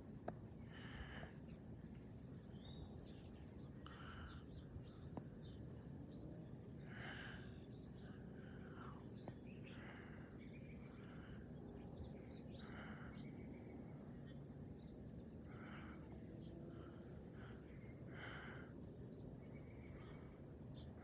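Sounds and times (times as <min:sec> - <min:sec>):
jet airliner rumble overhead: 0:00.0 - 0:21.0.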